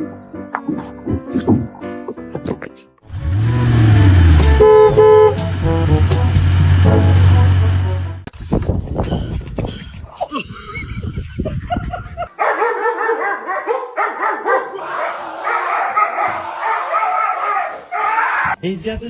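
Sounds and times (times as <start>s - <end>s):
dog barking and yipping: 12.3s - 18.6s.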